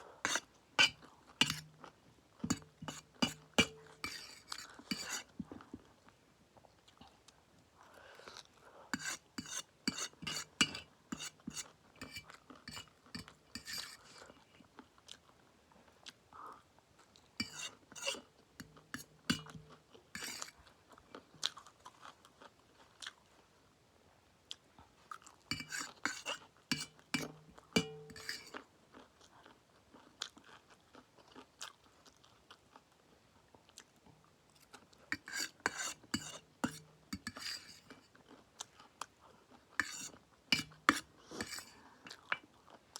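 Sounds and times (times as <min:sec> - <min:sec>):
cutlery clicking on plate: 0:00.3 - 0:01.7, 0:02.5 - 0:05.2, 0:09.0 - 0:13.9, 0:17.4 - 0:20.5, 0:25.5 - 0:28.5, 0:35.2 - 0:38.0, 0:39.8 - 0:41.7.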